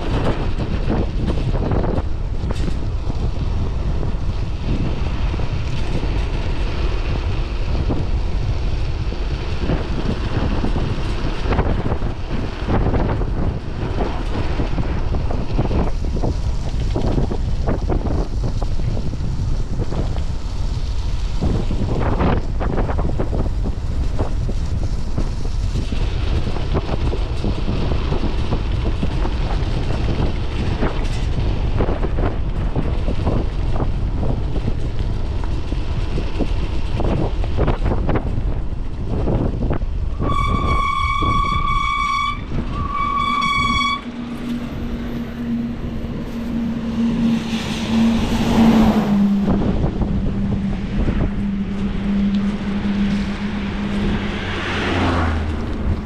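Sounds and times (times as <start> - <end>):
wind buffeting microphone: 0.0 - 56.0
high-pitched toots: 40.2 - 56.0
steady low hum: 43.8 - 56.0.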